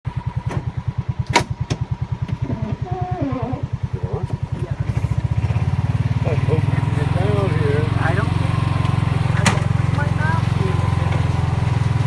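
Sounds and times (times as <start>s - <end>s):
small engine throbbing: 0.1s - 12.0s.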